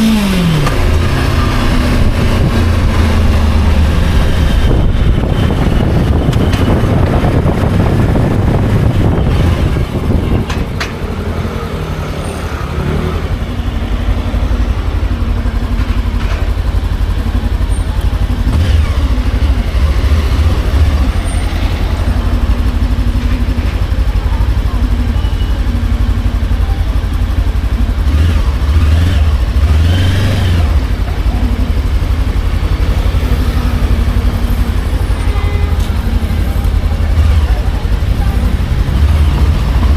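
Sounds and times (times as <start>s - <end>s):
motorcycle engine running: 0.0s - 39.9s
wind rush on microphone: 1.9s - 11.1s.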